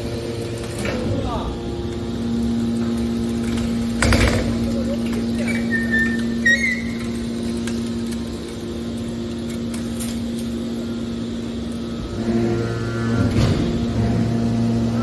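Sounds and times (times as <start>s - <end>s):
baler motor and pump humming: 0.0s - 15.0s
short high squeaks: 5.4s - 7.3s.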